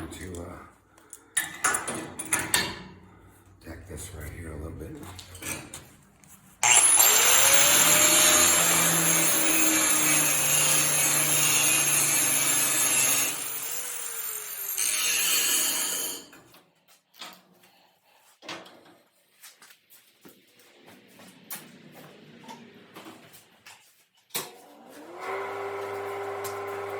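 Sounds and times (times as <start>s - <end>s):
angle grinder grinding steel: 6.6s - 16.4s.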